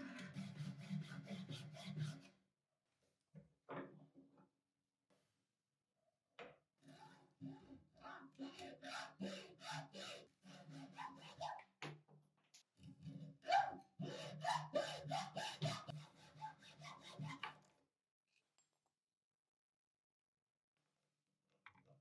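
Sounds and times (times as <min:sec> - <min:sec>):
hand tool scraping workpiece: 0:13.1 - 0:17.4.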